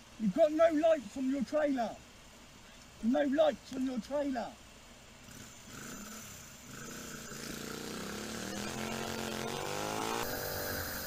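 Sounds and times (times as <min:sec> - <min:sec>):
motorcycle engine accelerating: 0:05.2 - 0:11.0.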